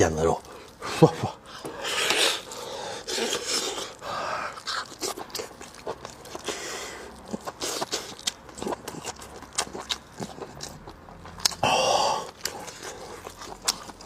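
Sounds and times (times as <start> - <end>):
wet chewing clicks: 0.0 - 14.0
breathy mouth noises: 0.4 - 10.9.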